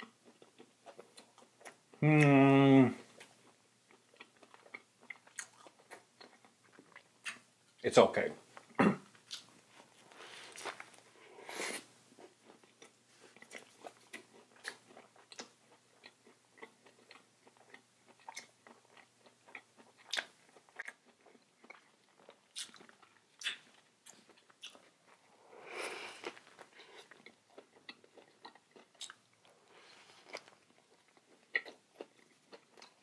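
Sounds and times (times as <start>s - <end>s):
sandwich bitten and chewed: 9.1s - 11.1s, 12.2s - 25.4s, 26.0s - 33.0s
small crunches: 9.2s - 11.1s
wet mouth clicks: 23.4s - 23.7s.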